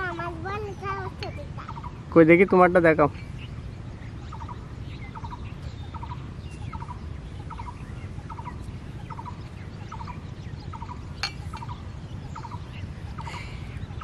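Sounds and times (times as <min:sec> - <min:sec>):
bird calling: 0:00.0 - 0:14.0.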